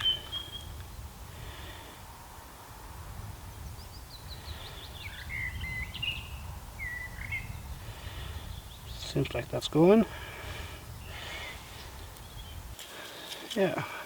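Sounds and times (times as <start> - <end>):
birds chirping and whistling: 0.0 - 1.0, 3.8 - 9.4, 10.4 - 12.7
wind rumble on microphone: 0.0 - 12.8.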